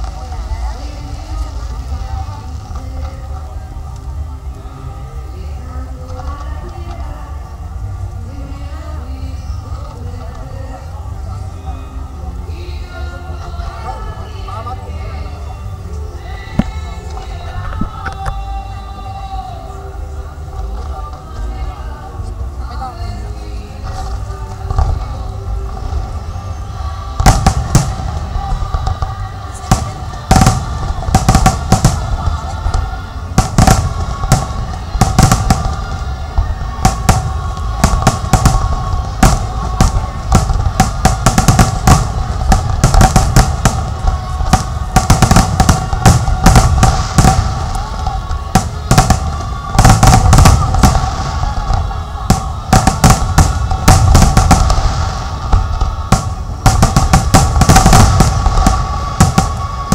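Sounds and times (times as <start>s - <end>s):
background music: 0.0s - 59.9s
fireworks bangs: 23.8s - 59.9s.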